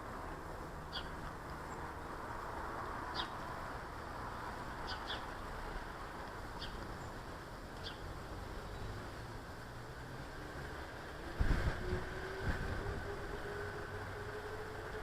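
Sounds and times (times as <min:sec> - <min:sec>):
small birds chirping: 0:00.8 - 0:02.2, 0:03.0 - 0:03.6, 0:04.8 - 0:05.5, 0:06.3 - 0:09.2.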